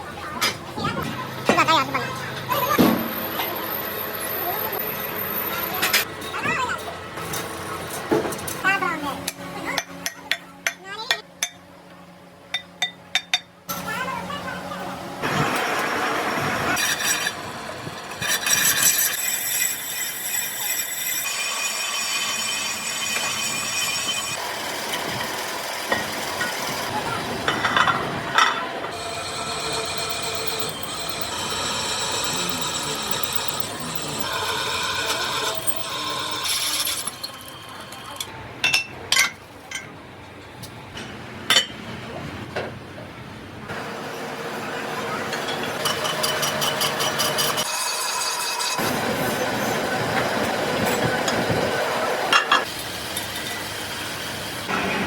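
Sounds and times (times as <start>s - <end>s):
metalworking machinery hissing: 15.2s - 38.3s, 43.7s - 55.0s.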